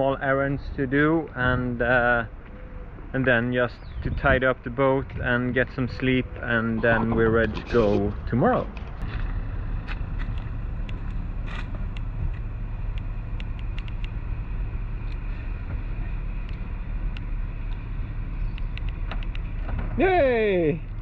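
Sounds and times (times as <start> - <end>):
car driving rumble: 0.0 - 21.0
light clicks: 9.9 - 14.2, 18.5 - 19.5.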